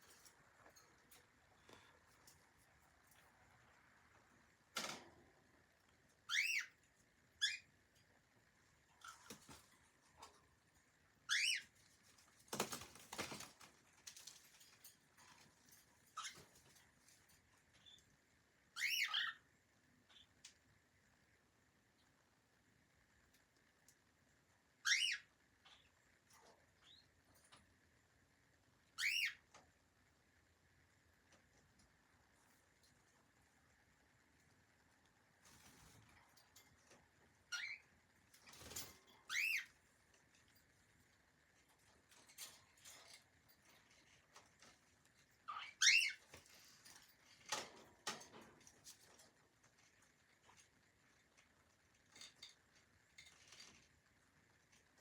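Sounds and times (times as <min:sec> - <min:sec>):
cockatiel chirp: 0:06.3 - 0:06.7, 0:11.3 - 0:11.7, 0:18.8 - 0:19.4, 0:24.8 - 0:25.8, 0:29.0 - 0:29.4, 0:37.5 - 0:37.8, 0:39.3 - 0:39.7, 0:45.5 - 0:46.2
cockatiel whistled calls: 0:06.3 - 0:06.7, 0:29.0 - 0:29.4.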